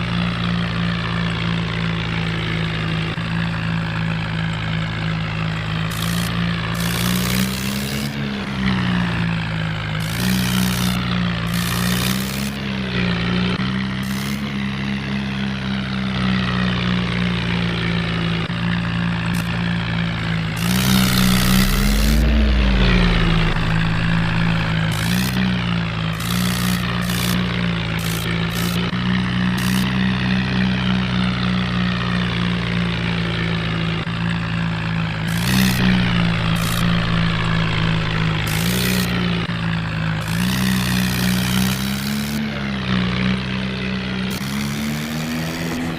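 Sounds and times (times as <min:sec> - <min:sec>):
high whir: 0:20.3 - 0:27.4, 0:35.2 - 0:39.6.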